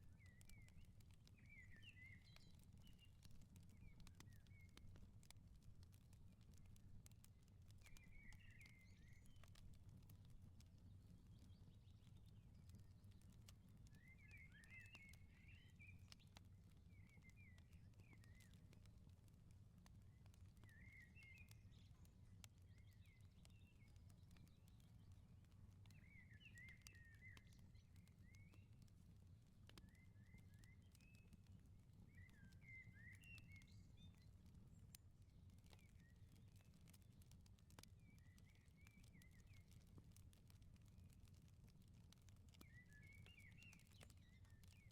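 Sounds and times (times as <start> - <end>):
crackling firepit: 0.0 - 44.9
small birds twittering: 7.8 - 9.6, 13.9 - 18.7, 20.4 - 28.7, 32.1 - 34.8, 42.5 - 44.9.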